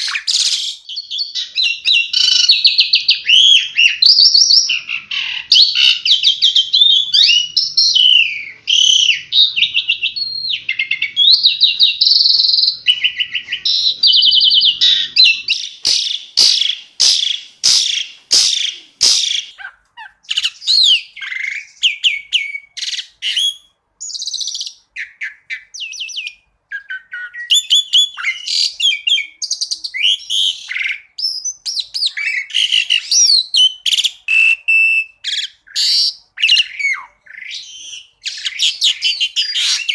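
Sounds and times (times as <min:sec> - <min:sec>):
starling singing: 0:00.0 - 0:39.9
sharp bird clicking notes: 0:15.8 - 0:19.5.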